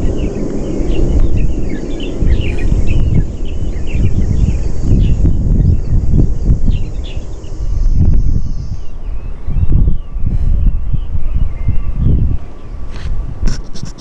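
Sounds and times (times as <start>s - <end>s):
small birds chirping: 0.0s - 14.0s
steady high hiss: 0.0s - 14.0s
wind buffeting microphone: 0.0s - 14.0s.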